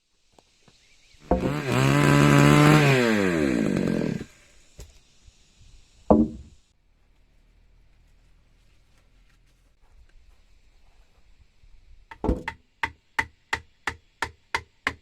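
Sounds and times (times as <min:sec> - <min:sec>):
chainsaw engine revving: 0:01.2 - 0:04.4.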